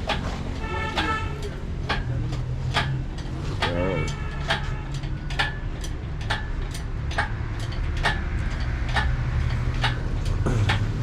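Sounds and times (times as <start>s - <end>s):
steady ticking clicks: 0.0s - 11.0s.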